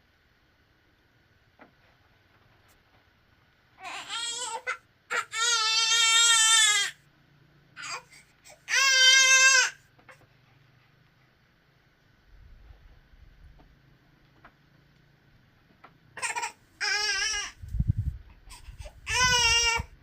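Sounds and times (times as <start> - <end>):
young child crying: 16.2 - 17.6, 18.5 - 20.0.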